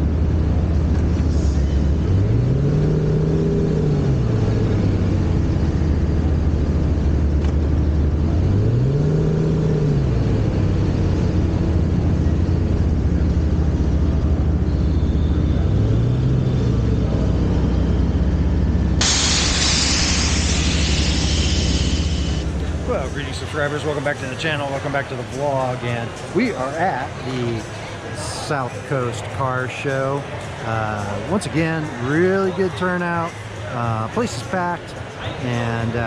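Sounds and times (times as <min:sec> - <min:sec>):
car engine revving: 0:00.0 - 0:36.0
loud rushing noise: 0:19.0 - 0:23.7.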